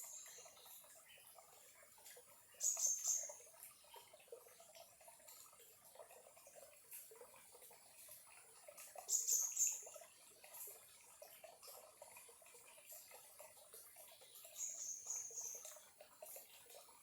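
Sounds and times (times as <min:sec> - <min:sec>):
stream trickling over stones: 0:00.0 - 0:17.0.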